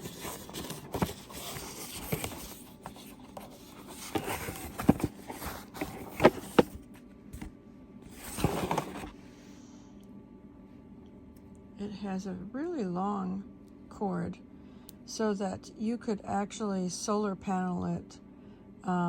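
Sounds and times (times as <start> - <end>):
packaging rustling: 0.0 - 7.5, 8.1 - 9.1.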